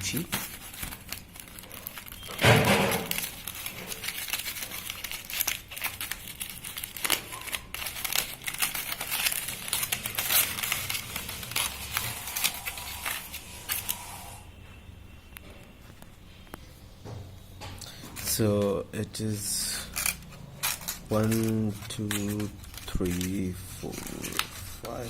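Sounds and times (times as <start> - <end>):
packaging crinkling: 0.0 - 14.4, 19.4 - 25.0.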